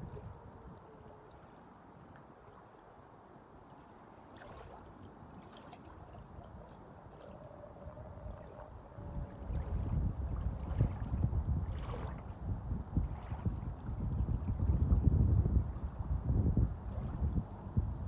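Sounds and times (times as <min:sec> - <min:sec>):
low wind rumble: 0:00.0 - 0:01.3, 0:07.6 - 0:18.0
waves lapping against shore: 0:00.0 - 0:14.8, 0:16.8 - 0:17.7.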